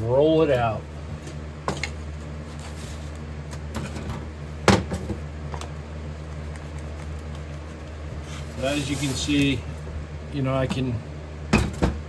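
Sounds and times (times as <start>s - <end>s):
furnace electric hum: 0.0s - 12.0s.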